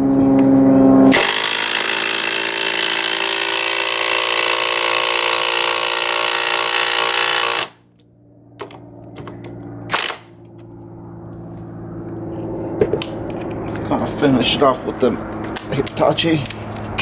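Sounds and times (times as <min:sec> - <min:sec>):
impact driver hammering: 0:01.1 - 0:07.8, 0:08.6 - 0:10.5.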